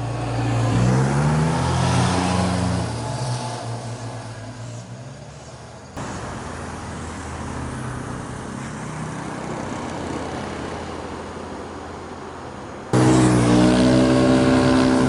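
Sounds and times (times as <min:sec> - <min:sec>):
motorcycle engine approaching: 0:13.0 - 0:15.0.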